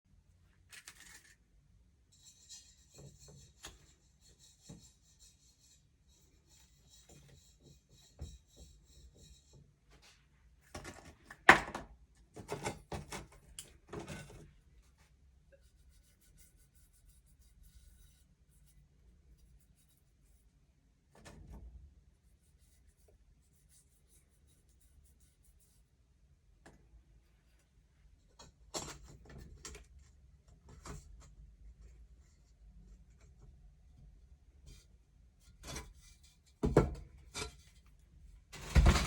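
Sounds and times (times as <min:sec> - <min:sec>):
rubbing and scraping at a workbench: 0:02.0 - 0:11.4, 0:12.3 - 0:26.0, 0:34.6 - 0:39.0.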